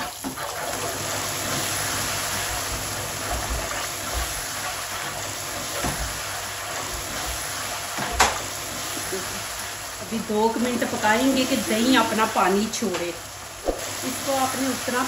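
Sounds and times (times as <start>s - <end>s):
wooden spoon stirring: 0.0s - 9.7s
masala sizzling in a pan: 0.0s - 15.0s.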